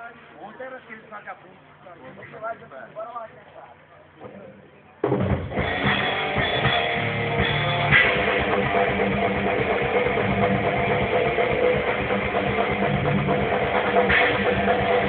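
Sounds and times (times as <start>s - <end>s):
rock band playing live: 5.0s - 15.0s.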